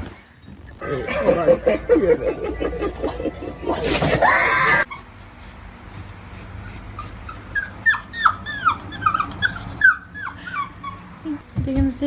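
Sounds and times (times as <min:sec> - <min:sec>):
dog whimpering: 0:04.3 - 0:11.4.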